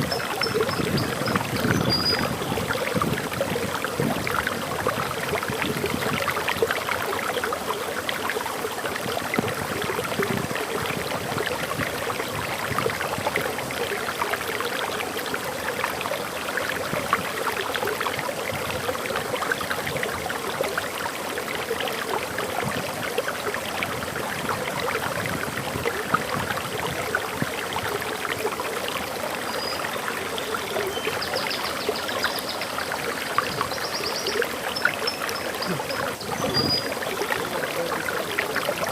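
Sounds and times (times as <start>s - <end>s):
waterfall pouring and splashing: 0.0s - 38.9s
faint high bird chirps: 0.1s - 2.3s, 33.4s - 36.9s.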